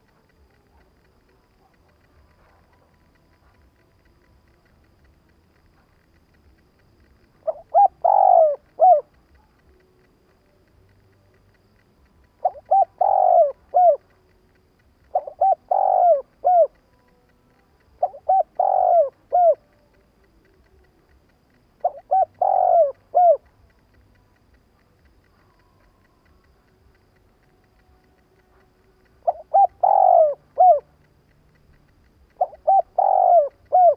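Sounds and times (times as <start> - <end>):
dove cooing: 0.0 - 3.9, 7.4 - 9.6, 12.3 - 14.1, 15.0 - 16.8, 18.0 - 19.8, 21.8 - 23.8, 29.2 - 31.0, 32.3 - 33.9.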